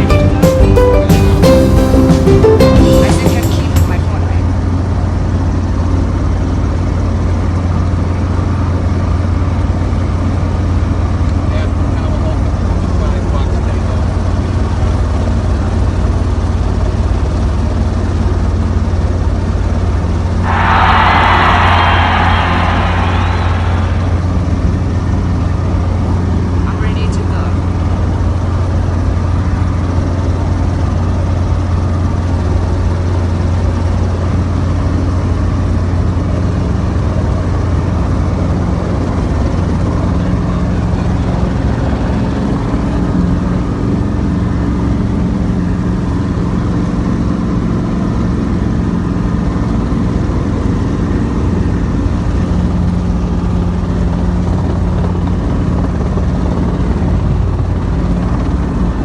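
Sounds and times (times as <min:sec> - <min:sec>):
helicopter engine and rotor: 0:38.4 - 0:59.0.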